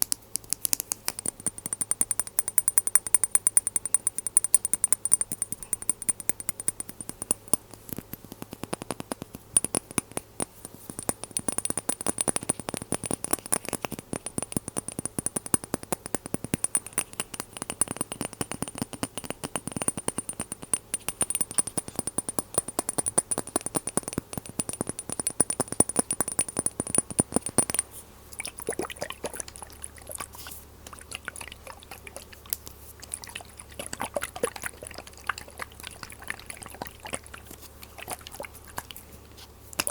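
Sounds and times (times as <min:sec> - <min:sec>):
glass bottles clicking: 0:28.4 - 0:39.0.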